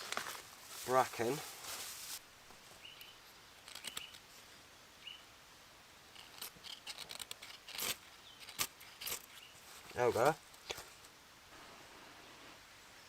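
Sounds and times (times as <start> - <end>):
small bird chirping: 2.8 - 4.3, 4.9 - 5.3, 8.1 - 9.7
dry bracken scraping and crackling: 6.2 - 11.1.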